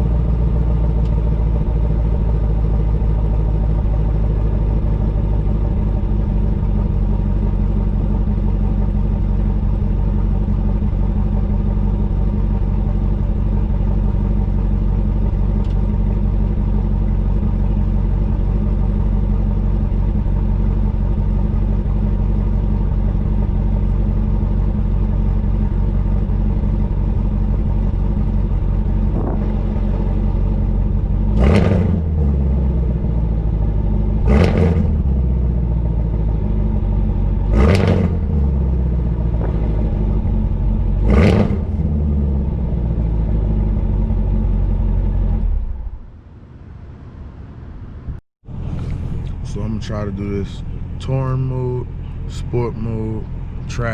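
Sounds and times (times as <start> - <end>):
car engine idling: 0.0 - 53.9
engine revving: 25.8 - 46.0, 48.4 - 53.9.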